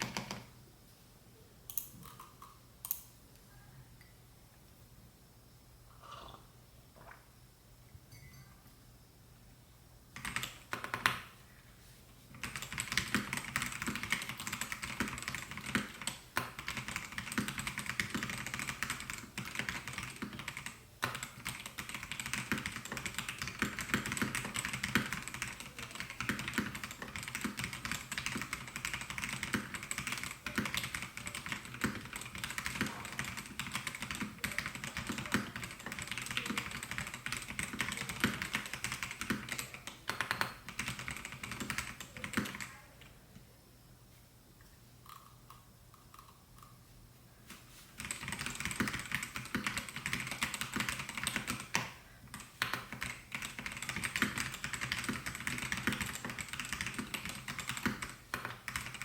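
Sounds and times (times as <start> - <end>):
mechanical keyboard typing: 0.0 - 0.5, 10.2 - 11.2, 12.4 - 42.8, 48.0 - 59.0.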